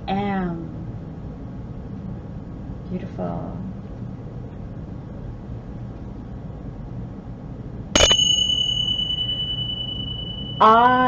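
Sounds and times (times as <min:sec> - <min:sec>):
small cymbals ringing: 0:08.0 - 0:11.0.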